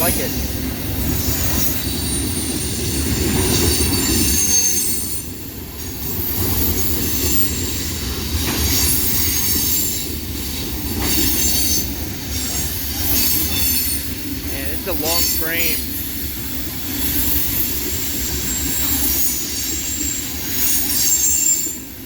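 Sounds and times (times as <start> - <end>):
train wheels rumbling on rail: 0.0 - 22.0
high-pitched wheel squeal: 18.5 - 21.9.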